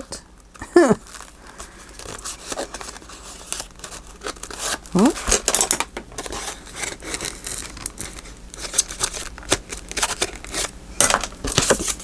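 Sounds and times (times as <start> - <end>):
paper rustling and crinkling: 0.5 - 12.0.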